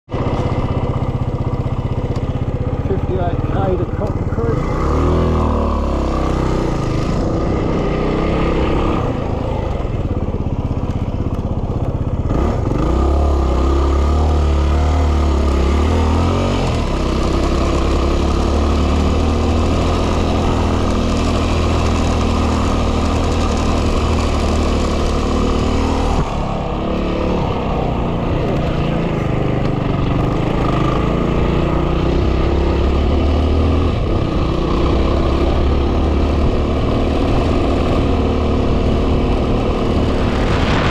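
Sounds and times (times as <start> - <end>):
motorcycle engine running: 0.1 - 40.9
wind buffeting microphone: 36.6 - 40.9.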